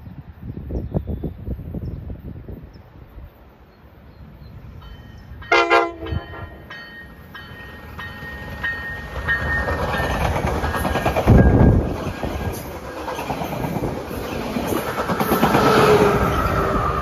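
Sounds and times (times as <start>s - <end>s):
train wheel and rail noise: 0.0s - 17.0s
train horn blast: 5.5s - 6.7s.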